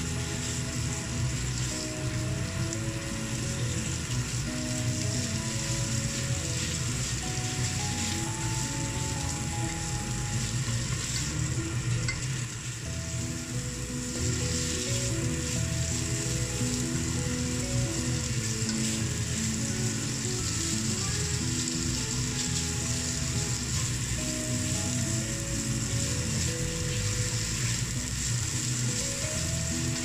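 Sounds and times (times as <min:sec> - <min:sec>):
spatula stirring in pan: 0:00.0 - 0:12.4, 0:13.2 - 0:30.0
background music with held notes: 0:00.0 - 0:30.0
meat and onion sizzling: 0:00.0 - 0:30.0.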